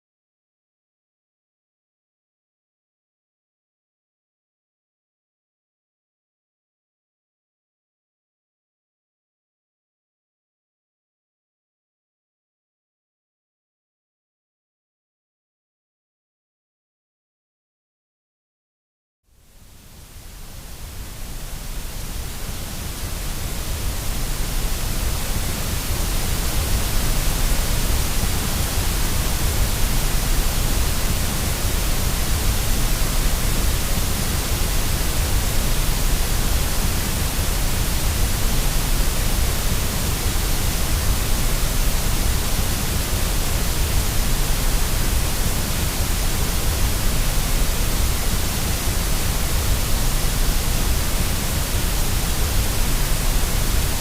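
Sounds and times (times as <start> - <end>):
white noise hiss with low rumble: 19.3 - 54.0.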